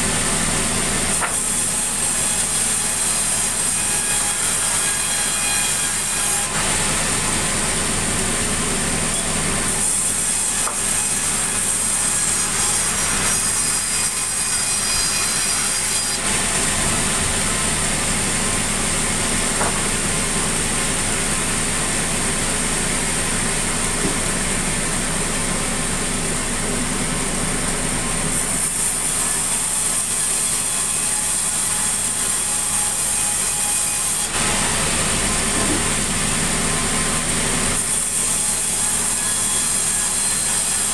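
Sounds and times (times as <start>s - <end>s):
saw cutting timber: 0.0s - 40.9s.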